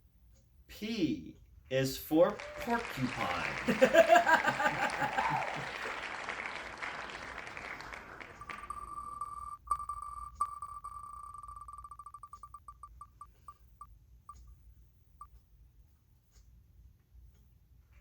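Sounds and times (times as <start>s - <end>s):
electronic beeping: 8.4s - 14.5s.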